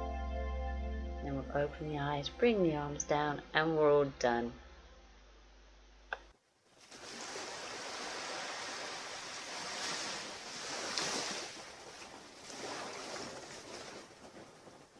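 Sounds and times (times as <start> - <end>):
ocean surf washing up beach: 6.8 - 14.9.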